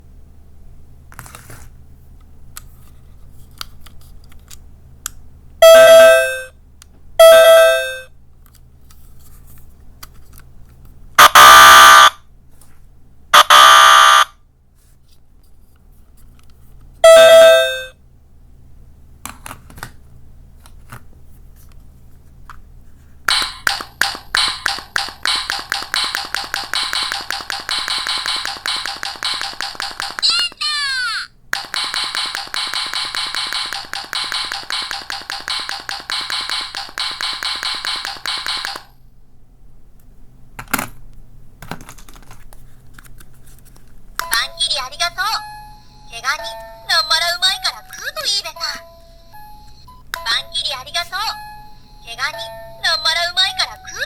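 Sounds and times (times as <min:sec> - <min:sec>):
harsh wrong-answer buzzer: 0:11.2 - 0:12.1, 0:13.4 - 0:14.3
fast repeated short beats: 0:23.3 - 0:30.6, 0:31.5 - 0:38.9
two-note correct-answer chime: 0:45.4 - 0:47.0, 0:48.6 - 0:54.0.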